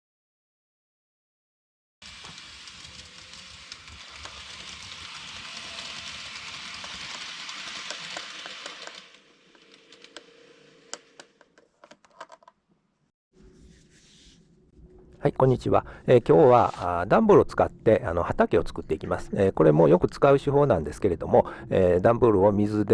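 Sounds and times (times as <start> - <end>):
model train whirring: 2.0 - 11.5.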